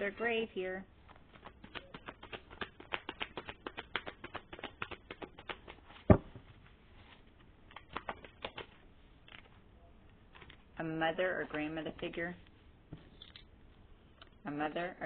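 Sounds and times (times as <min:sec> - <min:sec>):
cards being shuffled: 0:01.1 - 0:09.6, 0:10.3 - 0:10.7, 0:13.0 - 0:13.5
loud thump: 0:06.1 - 0:06.4.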